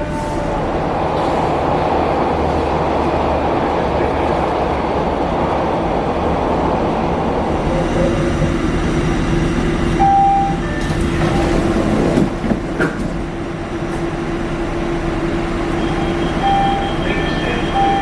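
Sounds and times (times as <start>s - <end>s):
train rumbling through tunnel: 0.0s - 18.0s
short beep: 10.0s - 10.9s, 15.8s - 18.0s.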